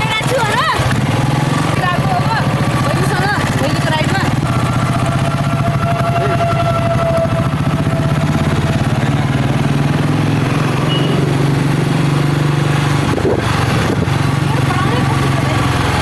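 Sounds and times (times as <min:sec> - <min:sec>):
motorcycle engine pulsing: 0:00.0 - 0:16.0.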